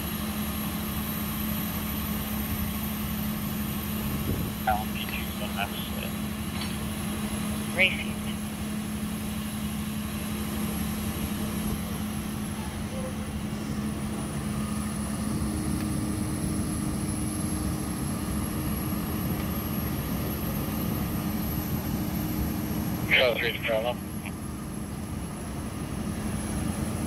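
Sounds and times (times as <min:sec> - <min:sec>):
vehicle engine running: 0:00.0 - 0:27.0
higher hum: 0:22.8 - 0:24.5.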